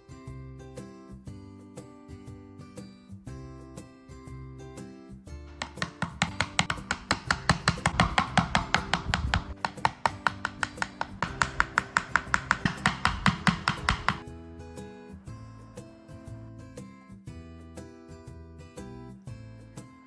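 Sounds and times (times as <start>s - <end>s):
background music: 0.0s - 20.0s
rapid chopping: 5.6s - 14.2s.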